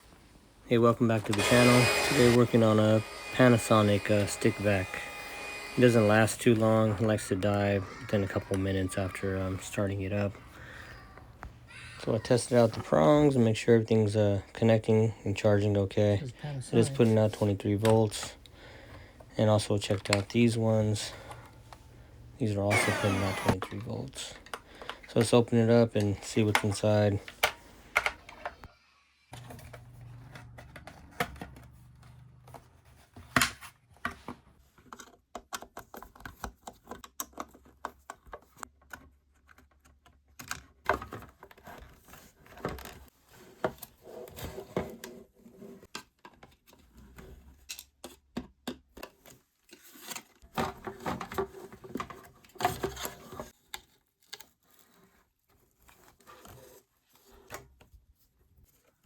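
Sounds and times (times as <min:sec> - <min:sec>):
plastic parts clicking and snapping: 0:33.4 - 0:41.7.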